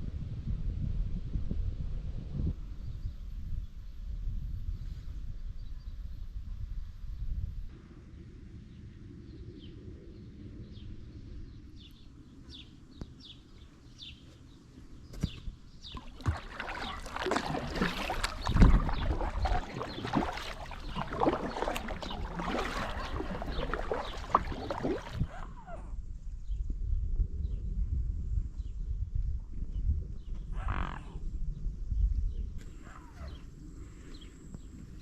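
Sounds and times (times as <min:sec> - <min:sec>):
wind rumble on microphone: 0:00.0 - 0:35.0
kayak paddle splashing: 0:15.2 - 0:25.4.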